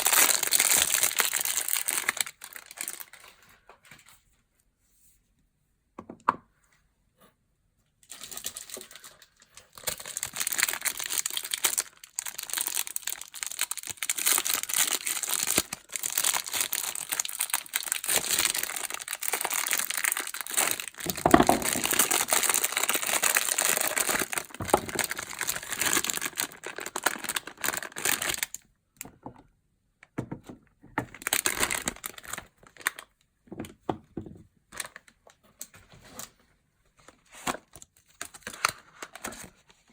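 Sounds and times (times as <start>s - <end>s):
packaging tearing: 0.0s - 3.3s, 9.7s - 28.6s, 31.2s - 33.0s
packaging crinkling and rustling: 0.0s - 4.3s, 8.0s - 29.1s, 31.0s - 33.8s, 37.0s - 39.9s.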